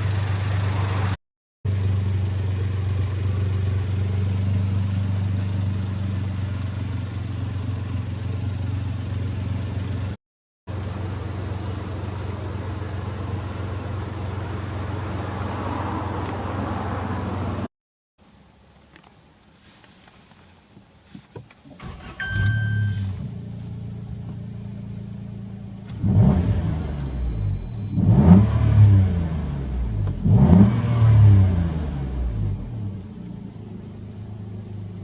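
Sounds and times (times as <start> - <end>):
car engine idling: 0.0 - 17.7, 21.7 - 28.0, 31.6 - 35.0.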